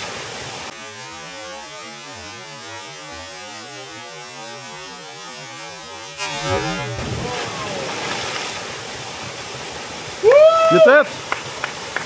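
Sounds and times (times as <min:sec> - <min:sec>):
muffled underwater bubbling: 0:06.6 - 0:10.2
waterfall rushing: 0:06.9 - 0:12.0.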